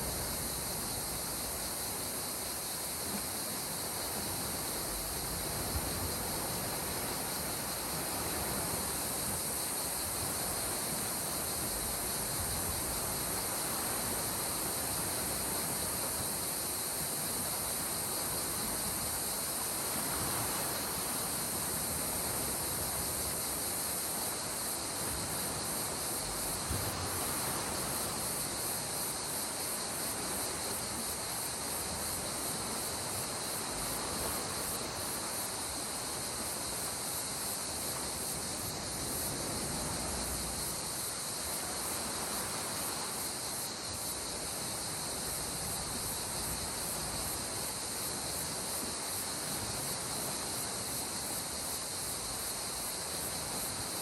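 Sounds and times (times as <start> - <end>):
high-pitched insect chorus: 0.0 - 54.0
sea surf washing on shore: 0.0 - 54.0.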